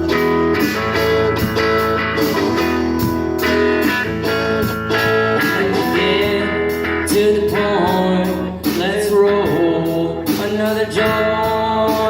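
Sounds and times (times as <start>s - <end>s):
rock band playing: 0.0s - 12.0s
strummed guitar chords: 0.0s - 12.0s.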